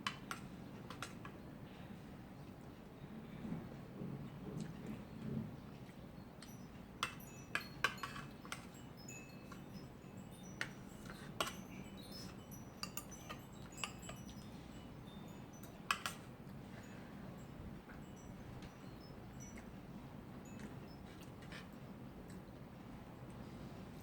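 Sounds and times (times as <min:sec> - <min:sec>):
light metallic clinks: 0:06.4 - 0:19.8.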